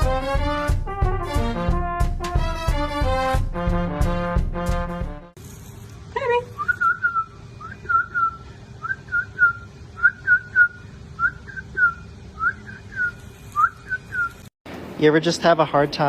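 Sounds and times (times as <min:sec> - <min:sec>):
faint steady hum: 0:05.8 - 0:15.1
whistle-like chirps: 0:06.6 - 0:14.5.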